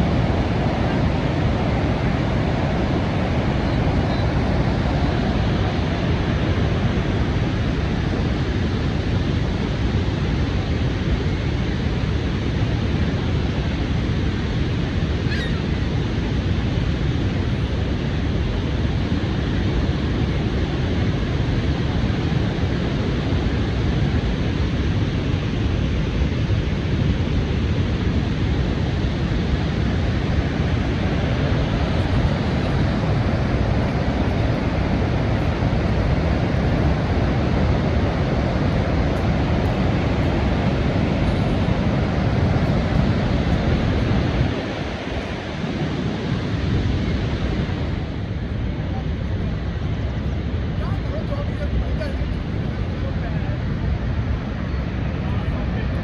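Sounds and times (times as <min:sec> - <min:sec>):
waterfall rushing: 0:30.0 - 0:48.8.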